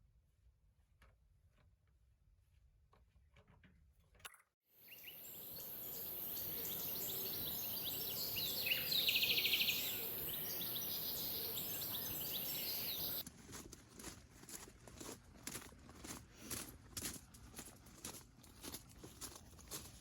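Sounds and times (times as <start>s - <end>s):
bird chirps: 4.8s - 13.2s
bird trill: 4.9s - 13.2s
steady high hiss: 4.9s - 13.2s.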